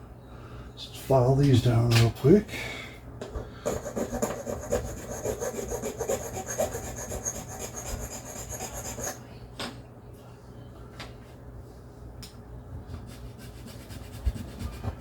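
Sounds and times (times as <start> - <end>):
hand file rasping on metal: 3.7 - 9.2.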